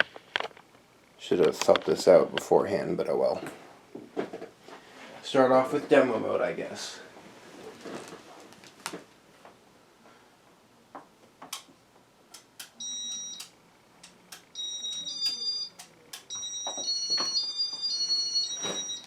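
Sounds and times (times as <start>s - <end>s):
electronic beeps: 12.8s - 13.5s, 14.5s - 19.0s.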